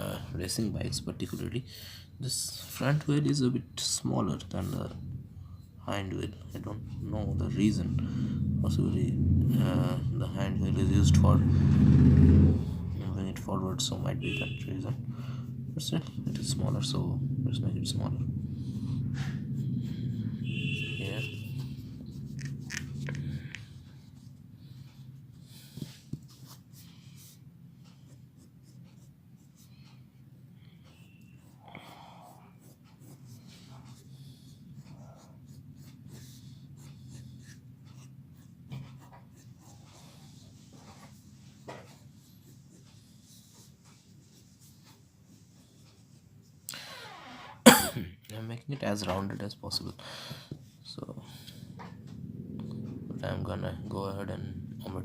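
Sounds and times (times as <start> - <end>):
low hum: 3.6 - 26.1, 50.6 - 55.0
pencil scratching on paper: 18.5 - 30.0, 30.9 - 46.3.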